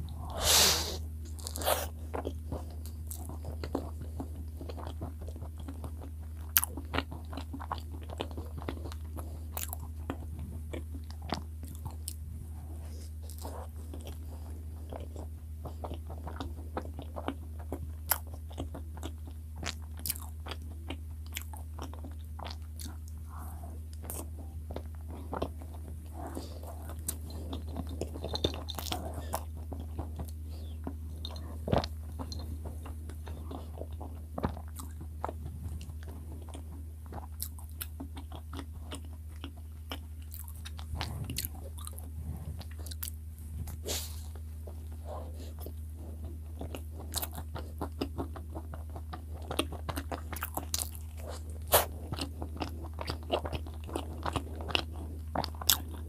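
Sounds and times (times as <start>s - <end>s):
chewing soft bread: 0.0s - 56.0s
steady low hum: 0.0s - 56.0s.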